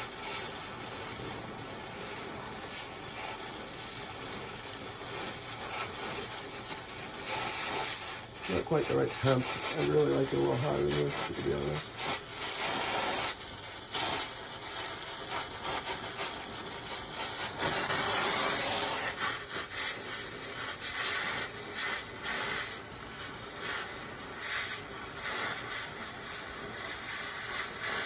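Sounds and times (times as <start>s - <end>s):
torch flame hissing: 0.0s - 28.0s.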